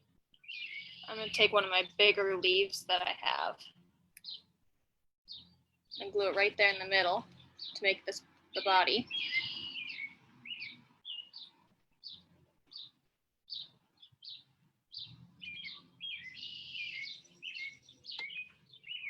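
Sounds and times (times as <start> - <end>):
songbirds singing: 0.4 - 4.5, 5.3 - 19.0.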